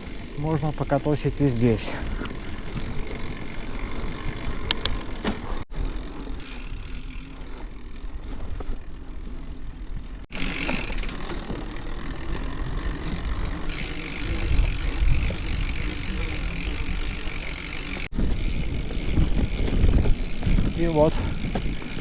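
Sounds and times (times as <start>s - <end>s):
bike tyre and drivetrain noise: 0.0s - 22.0s
wind rumbling on microphone: 12.2s - 22.0s.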